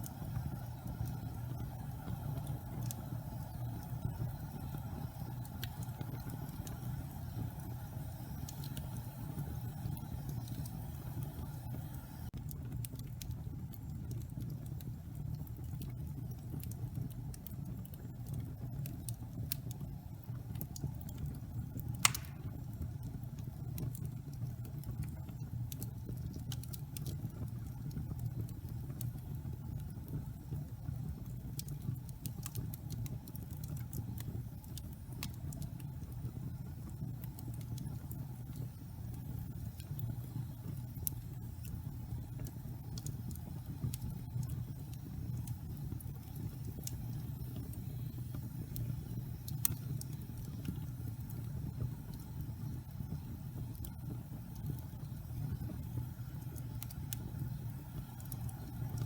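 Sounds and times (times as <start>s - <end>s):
low fire rumble: 0.0s - 59.0s
wood fire crackling: 0.0s - 59.0s
sharp fire pop: 22.0s - 22.8s.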